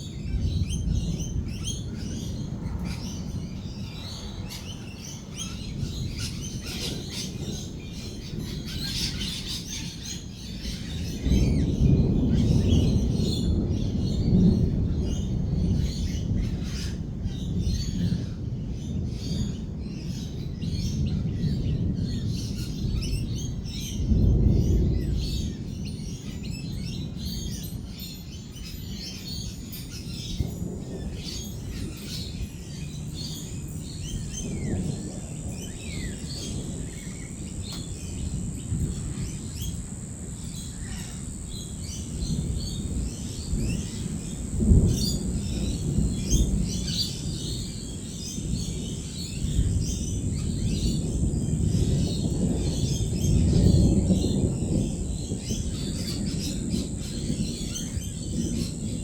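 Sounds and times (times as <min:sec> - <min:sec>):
lorikeets chattering and chirping: 0:00.0 - 0:18.1, 0:22.1 - 0:59.0
rolling thunder: 0:00.0 - 0:59.0
high-pitched whine: 0:35.1 - 0:47.0.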